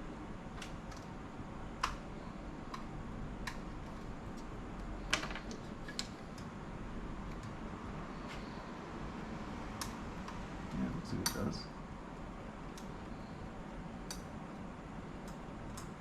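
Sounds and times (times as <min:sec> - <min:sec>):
low steady hum: 0:00.0 - 0:16.0
tool clicking on laptop parts: 0:01.8 - 0:06.5.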